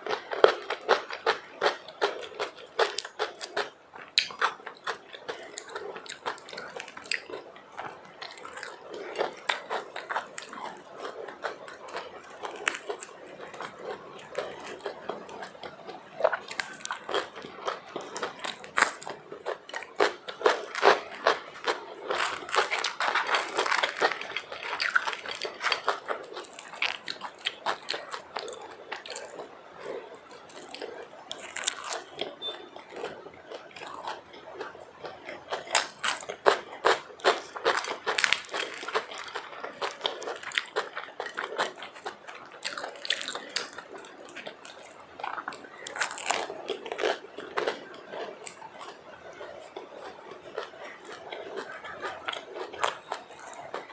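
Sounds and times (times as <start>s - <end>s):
person chewing food: 0.0s - 53.9s
crackly mouth clicks: 3.0s - 19.2s.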